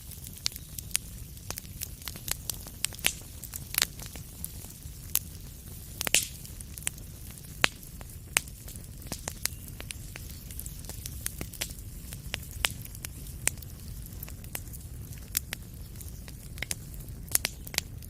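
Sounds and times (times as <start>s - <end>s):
low rumble of flame: 0.0s - 18.0s
wood fire crackling: 0.0s - 18.0s.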